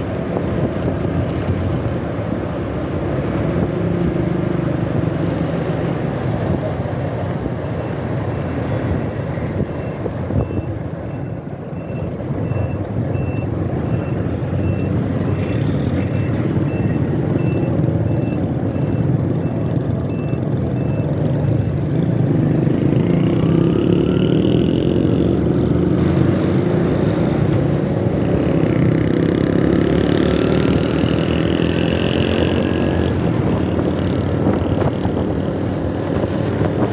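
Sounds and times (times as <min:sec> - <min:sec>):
road wind and engine noise: 0:00.0 - 0:36.9
engines speeding up: 0:13.3 - 0:36.9
high beep: 0:16.1 - 0:21.2.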